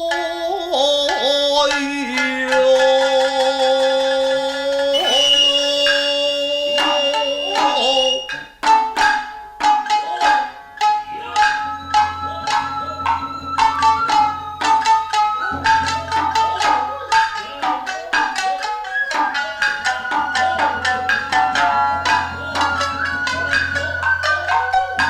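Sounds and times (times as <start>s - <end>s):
hand drum strikes: 0.0s - 25.0s
shamisen: 0.0s - 25.0s
long sung note: 4.9s - 8.2s
high held tone: 4.9s - 8.6s, 11.0s - 25.0s.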